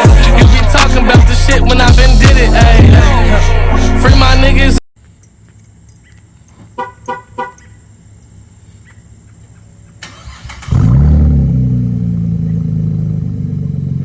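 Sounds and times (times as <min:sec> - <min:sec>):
car horn toots: 0:06.7 - 0:07.8
car engine running: 0:10.2 - 0:14.0.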